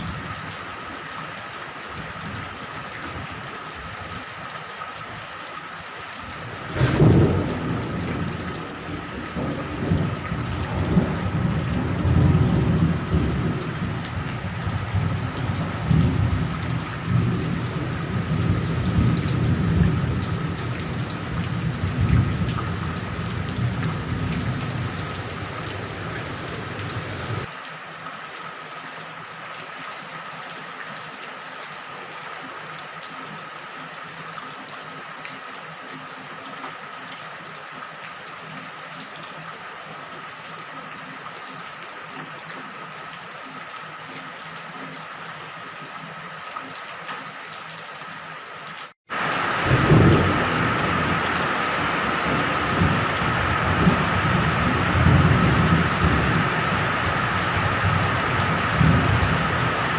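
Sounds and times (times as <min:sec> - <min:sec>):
steady rain: 0:00.0 - 0:59.9
thunder rumbling: 0:06.4 - 0:27.5, 0:49.5 - 0:59.9
thunderclap: 0:06.5 - 0:08.4, 0:09.9 - 0:27.5.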